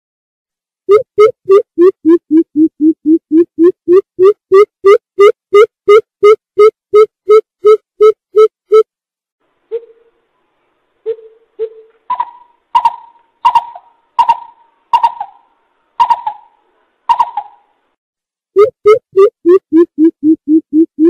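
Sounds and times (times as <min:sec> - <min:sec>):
higher ringing bird notes: 0:11.1 - 0:17.7.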